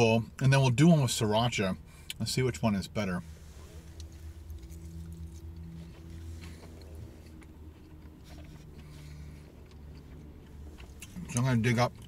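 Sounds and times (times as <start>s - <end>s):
car cabin hum: 0.1s - 12.0s
man chewing: 3.4s - 11.4s.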